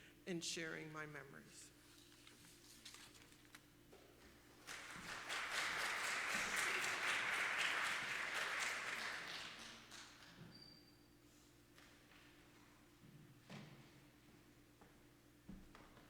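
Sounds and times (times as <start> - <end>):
congregation applauding: 4.6 - 10.7.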